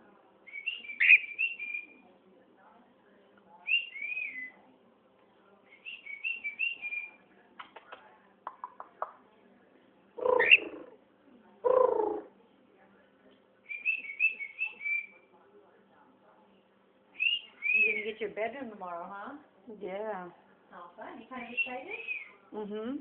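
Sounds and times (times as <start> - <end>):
cockatiel whistling: 0.5 - 2.0, 13.7 - 15.2, 17.2 - 18.1, 21.4 - 22.3
cockatiel calls: 10.2 - 10.8.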